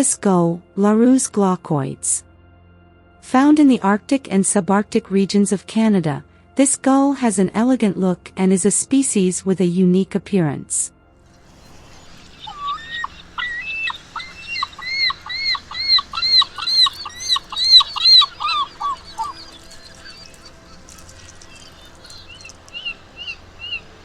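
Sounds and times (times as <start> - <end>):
faint higher gull calls: 11.5 - 24.0
gull yelping calls: 11.5 - 24.0.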